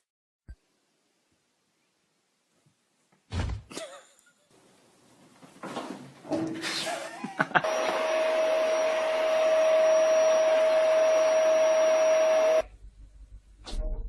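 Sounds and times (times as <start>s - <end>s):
small electric motor whirring: 7.6s - 12.6s.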